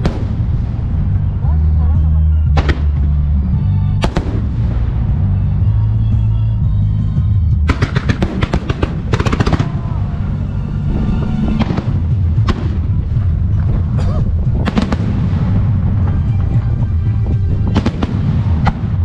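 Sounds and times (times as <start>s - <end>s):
fireworks booming and cracking: 0.0s - 1.5s, 4.0s - 5.6s, 7.6s - 19.0s
loud music: 0.0s - 19.0s.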